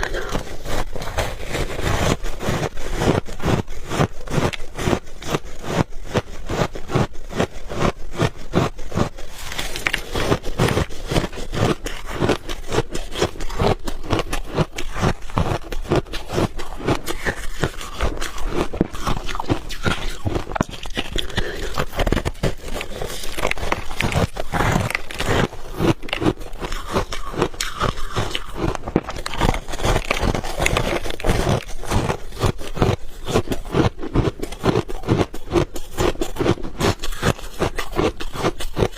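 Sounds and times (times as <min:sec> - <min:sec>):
ice being chewed and crunched: 0:00.0 - 0:38.9.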